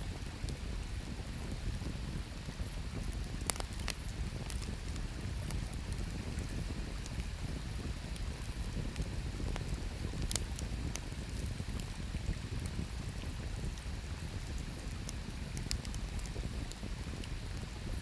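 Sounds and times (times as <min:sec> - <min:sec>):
campfire crackling and popping: 0:00.2 - 0:18.0
low rush of fire: 0:02.6 - 0:18.0.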